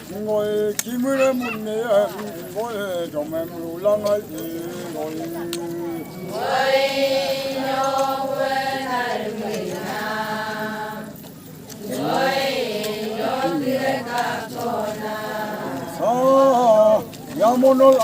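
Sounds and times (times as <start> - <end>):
voices chanting: 0.0 - 18.0.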